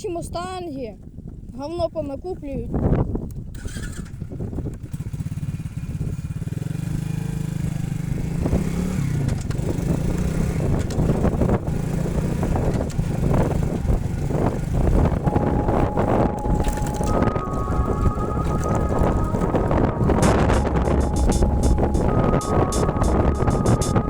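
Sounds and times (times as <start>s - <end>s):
motorcycle engine revving: 3.6s - 22.2s.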